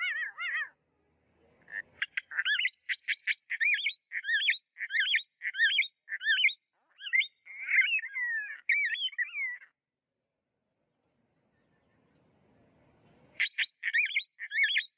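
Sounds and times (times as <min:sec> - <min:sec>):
parrot chirping: 0:00.0 - 0:00.8, 0:01.6 - 0:09.8, 0:13.4 - 0:14.9.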